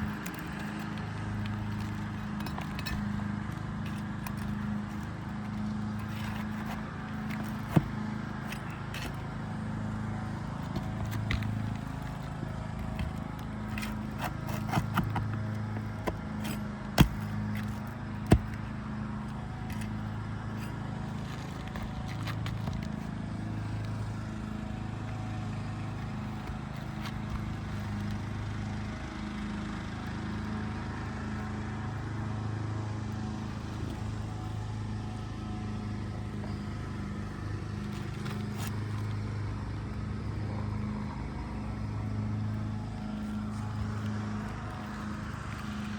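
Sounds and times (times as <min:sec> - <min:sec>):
low engine hum: 0:00.0 - 0:45.9
hand tools knocking on roof shingles: 0:12.8 - 0:18.7.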